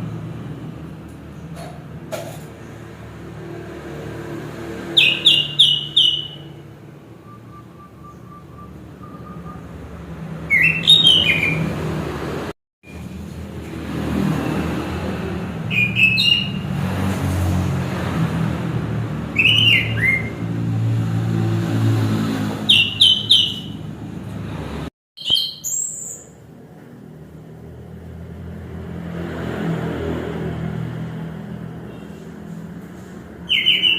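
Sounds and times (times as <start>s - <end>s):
thrush whistling song: 4.9s - 11.8s, 15.7s - 16.6s, 19.3s - 20.5s, 22.7s - 23.8s, 25.2s - 26.4s, 33.4s - 33.9s.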